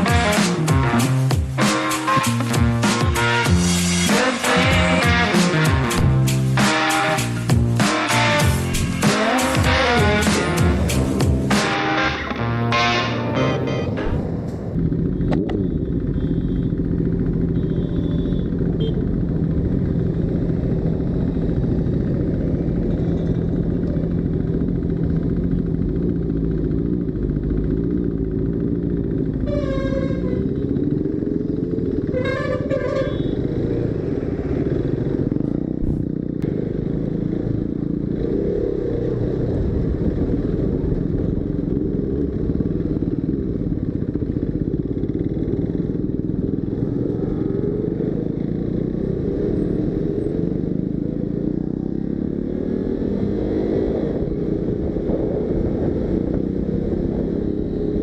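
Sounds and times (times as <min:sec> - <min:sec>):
vehicle horn: 0:00.0 - 0:05.7, 0:11.5 - 0:14.4, 0:17.4 - 0:19.1, 0:29.3 - 0:30.8, 0:32.0 - 0:33.9
motorcycle engine running: 0:00.0 - 0:58.0.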